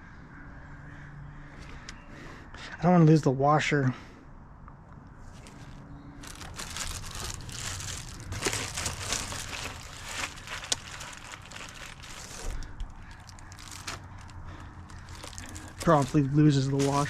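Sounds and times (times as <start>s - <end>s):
hands crinkling and rustling: 5.3s - 17.0s.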